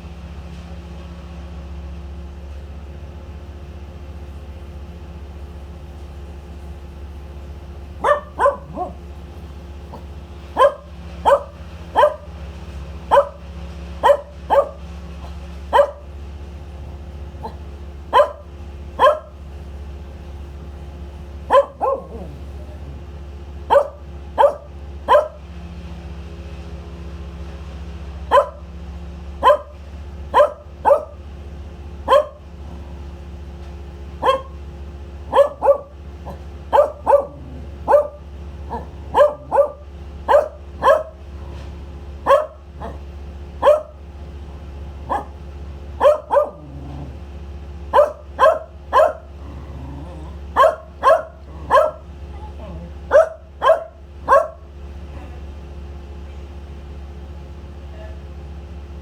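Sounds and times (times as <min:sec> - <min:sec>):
steady low hum: 0:01.8 - 0:59.0
dog barking: 0:08.0 - 0:09.3, 0:09.9 - 0:12.4, 0:13.0 - 0:16.2, 0:17.4 - 0:19.4, 0:21.4 - 0:25.5, 0:28.3 - 0:28.7, 0:29.4 - 0:31.3, 0:32.0 - 0:32.9, 0:34.2 - 0:34.6, 0:35.2 - 0:41.4, 0:42.2 - 0:44.1, 0:45.0 - 0:45.4, 0:46.0 - 0:47.2, 0:47.9 - 0:55.3.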